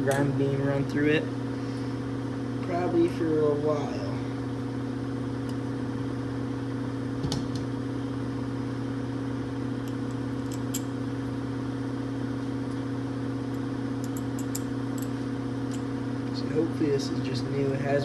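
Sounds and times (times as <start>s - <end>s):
steady low hum: 0.0s - 18.0s
small metal parts clicking: 14.0s - 15.1s.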